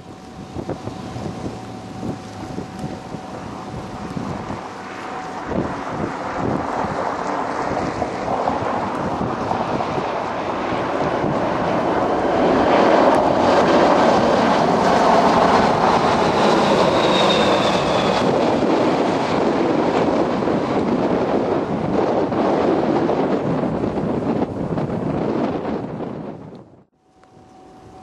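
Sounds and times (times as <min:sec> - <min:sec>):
faint high whine: 0:00.0 - 0:08.4, 0:27.0 - 0:28.0
jet engines rumbling: 0:00.0 - 0:28.0
wind buffeting microphone: 0:00.0 - 0:28.0.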